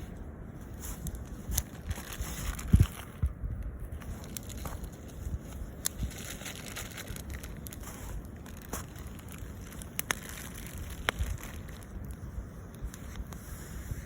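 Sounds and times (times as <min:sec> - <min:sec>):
low steady rumble: 0:00.0 - 0:14.0
campfire crackling and popping: 0:05.7 - 0:13.0.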